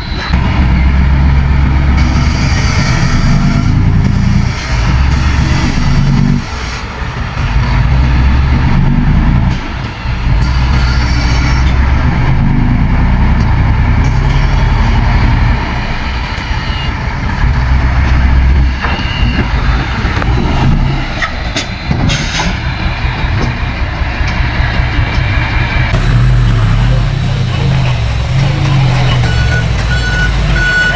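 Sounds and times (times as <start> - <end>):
heavy diesel machinery rumble: 0.0 - 30.9
sharp clanks and squeaks: 16.3 - 24.4.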